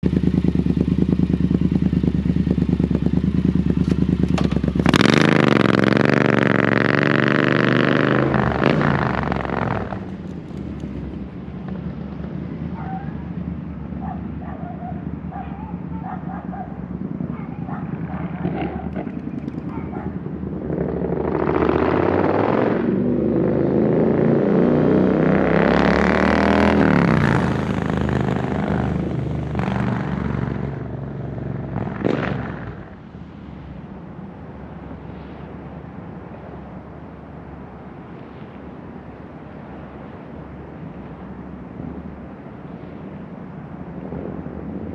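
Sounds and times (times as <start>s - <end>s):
motorcycle engine idling and revving: 0.0s - 38.0s.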